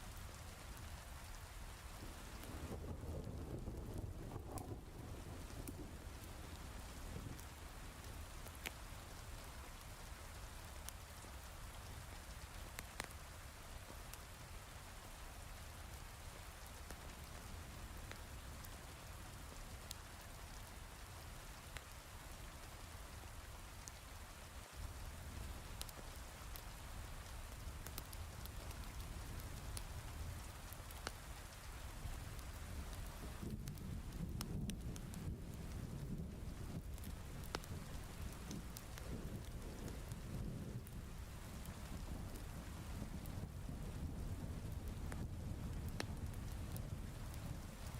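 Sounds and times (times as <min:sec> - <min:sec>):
heavy rain falling: 0:00.0 - 0:47.9
log fire crackling: 0:00.0 - 0:47.9.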